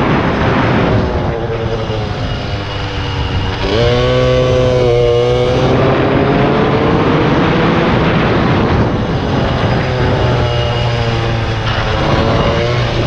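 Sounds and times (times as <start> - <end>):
heavy wind noise: 0.0 - 13.0
small motorcycle engine revving: 0.0 - 13.0.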